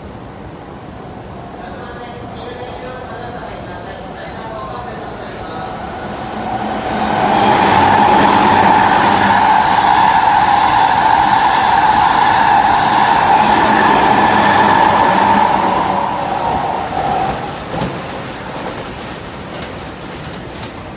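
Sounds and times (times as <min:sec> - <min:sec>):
electric train passing: 0:00.0 - 0:20.9.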